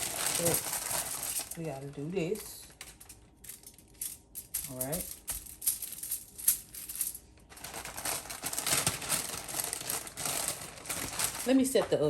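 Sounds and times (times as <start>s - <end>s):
food packaging crinkling: 0.0s - 3.9s, 6.8s - 11.8s.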